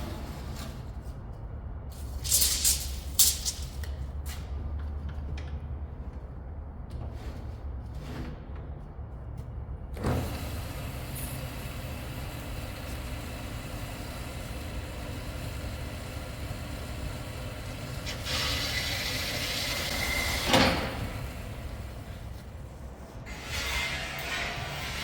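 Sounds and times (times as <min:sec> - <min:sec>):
workshop machinery humming: 0:10.0 - 0:25.0.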